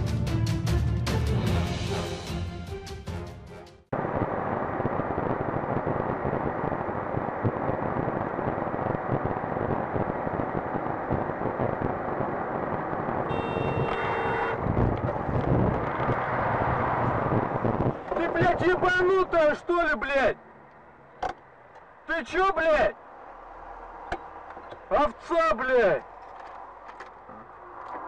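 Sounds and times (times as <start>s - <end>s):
road and engine noise: 3.9s - 28.0s
car horn: 13.2s - 14.8s.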